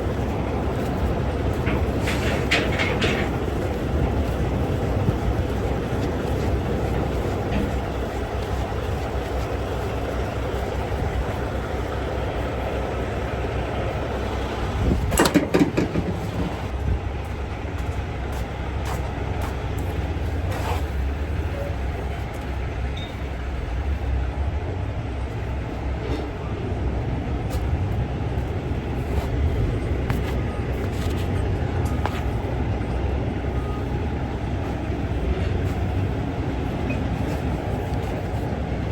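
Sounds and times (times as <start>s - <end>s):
heavy truck engine rumble: 0.0s - 38.9s
rattling clatter: 0.2s - 5.1s, 14.9s - 16.7s.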